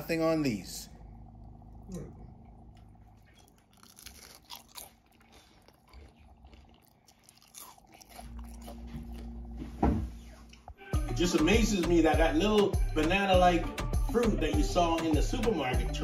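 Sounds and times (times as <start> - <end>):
crunching and chewing crispy food: 2.7 - 9.6.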